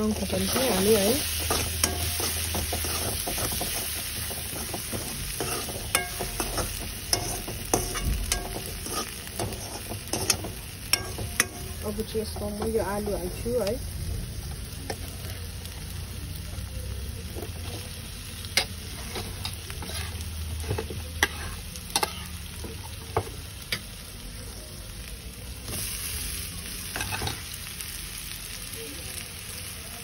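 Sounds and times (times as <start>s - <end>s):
stirring in a pan: 0.0s - 13.7s, 17.1s - 23.9s
food sizzling in oil: 0.0s - 30.0s.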